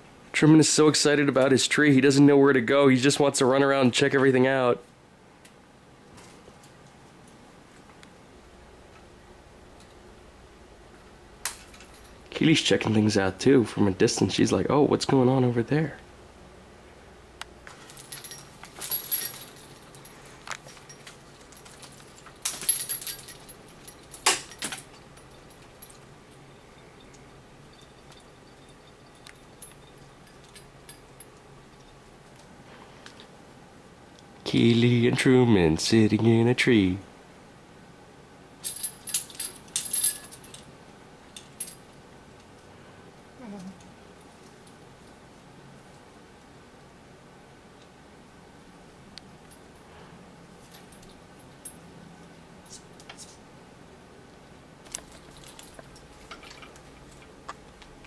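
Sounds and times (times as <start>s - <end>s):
hanging toys jangling and rattling: 11.5s - 12.3s, 17.7s - 32.0s, 38.6s - 40.7s, 54.8s - 57.4s.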